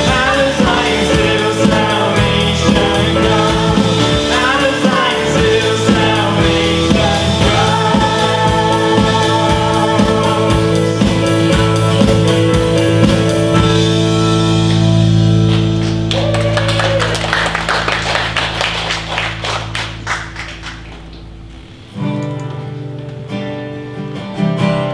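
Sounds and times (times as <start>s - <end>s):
steady drum beat: 0.0s - 13.7s, 15.5s - 21.4s
quick guitar strumming: 0.0s - 24.9s
worship band music: 0.0s - 24.9s.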